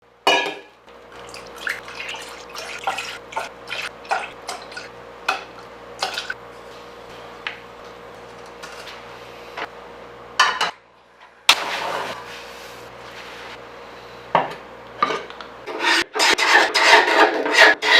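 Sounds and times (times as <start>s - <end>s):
running water: 1.1s - 4.9s.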